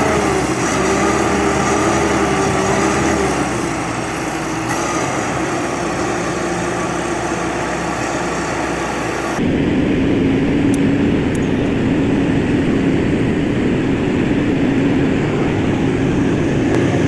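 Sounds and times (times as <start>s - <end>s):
heavy diesel machinery engine drone: 0.0s - 17.0s.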